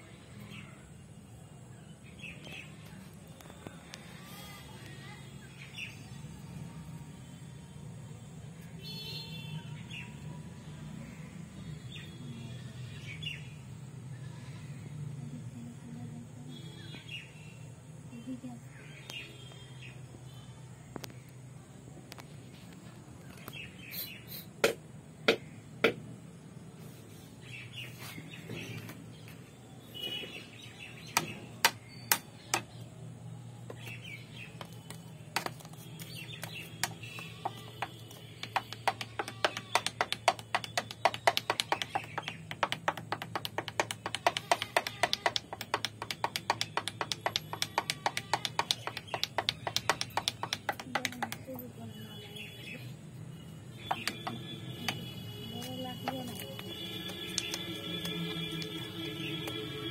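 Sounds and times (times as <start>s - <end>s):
birds chirping: 33.7s - 59.9s
sharp taps: 34.6s - 51.6s, 53.8s - 58.8s
fast run of clicks: 37.8s - 51.5s.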